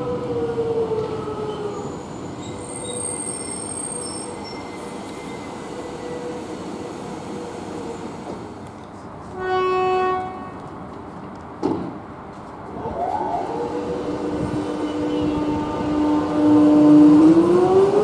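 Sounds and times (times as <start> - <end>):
train horn blast: 9.3 - 10.7, 13.4 - 18.0
electric train rumble: 12.6 - 18.0.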